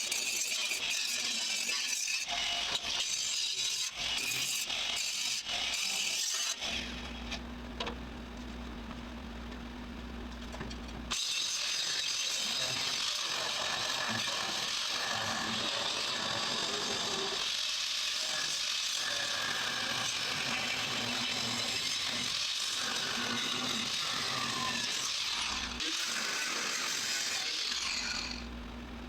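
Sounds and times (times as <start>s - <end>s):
power tool rasping on metal: 0.0s - 7.2s, 11.1s - 28.5s
low steady hum: 7.0s - 11.1s, 28.4s - 29.0s.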